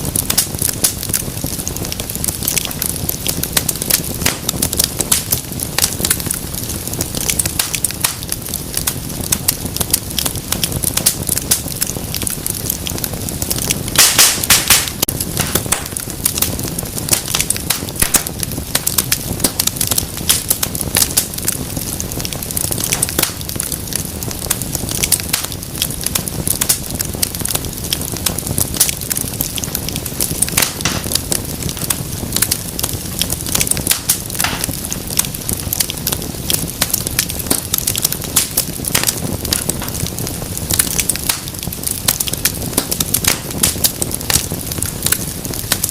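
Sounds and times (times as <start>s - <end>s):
low rumble of flames: 0.0s - 45.9s
wood fire crackling and popping: 0.0s - 45.9s.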